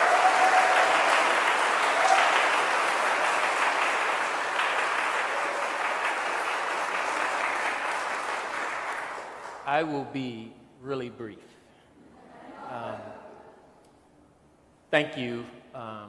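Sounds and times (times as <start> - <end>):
faint whoop: 0.0 - 2.5
congregation applauding: 0.0 - 10.0.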